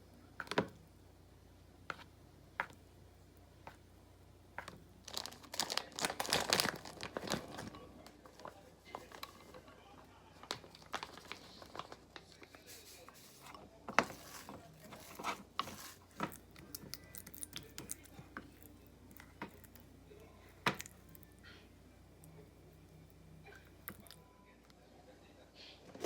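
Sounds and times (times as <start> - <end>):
packaging crinkling: 5.0 - 9.4, 10.4 - 13.4.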